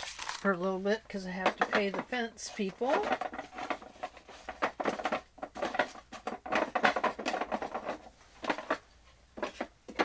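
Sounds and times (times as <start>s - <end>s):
paper rustling: 0.0s - 0.5s.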